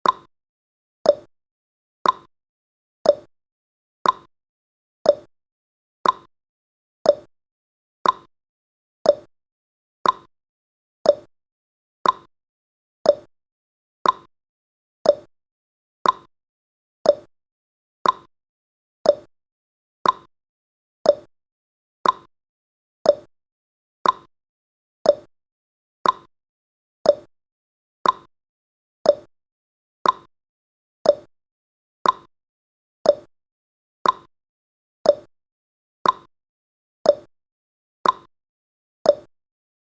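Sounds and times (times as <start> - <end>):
clock ticking: 2.0 - 2.3, 4.0 - 4.3, 6.0 - 6.3, 8.0 - 8.3, 10.0 - 10.3, 12.0 - 12.3, 14.0 - 14.3, 15.1 - 15.3, 16.0 - 16.3, 18.0 - 18.3, 20.0 - 20.3, 21.1 - 21.3, 22.0 - 22.3, 24.0 - 24.3, 26.0 - 26.3, 28.0 - 28.3, 29.1 - 29.3, 30.0 - 30.3, 31.1 - 31.3, 32.0 - 32.3, 33.1 - 33.3, 34.0 - 34.3, 35.1 - 35.3, 36.0 - 36.3, 38.0 - 38.3, 39.1 - 39.3.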